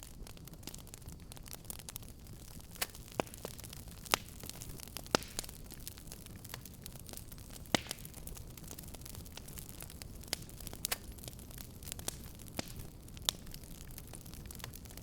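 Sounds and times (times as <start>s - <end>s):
low rumble of flame: 0.0s - 15.0s
sharp pops of fire: 0.0s - 15.0s
wood fire crackling: 0.0s - 15.0s.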